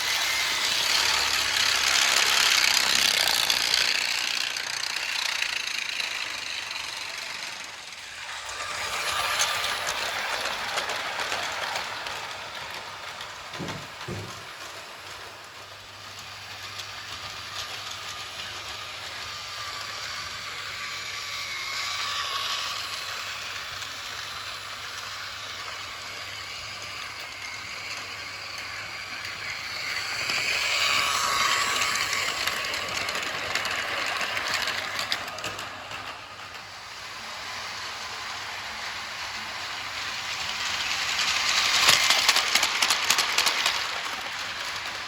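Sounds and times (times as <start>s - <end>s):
toy train motor whirring: 0.0s - 45.0s
toy train wheels rattling: 0.0s - 45.0s.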